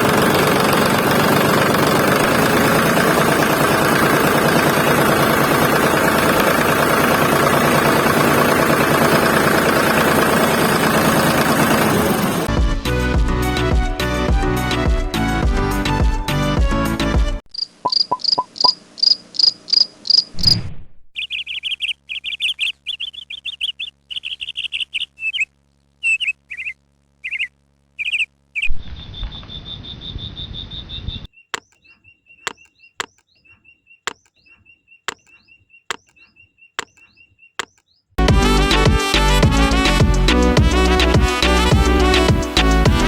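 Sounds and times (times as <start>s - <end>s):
background music: 12.4s - 17.4s, 38.2s - 43.0s
cricket-like pips with clicks: 17.6s - 20.3s, 31.6s - 31.9s, 32.5s - 33.3s, 34.1s - 34.4s, 35.1s - 36.2s, 36.8s - 37.9s
high insect buzz: 17.6s - 20.4s
bird chirps: 17.6s - 20.6s, 21.2s - 38.2s
warbling bird calls: 17.9s - 20.4s, 21.2s - 38.1s.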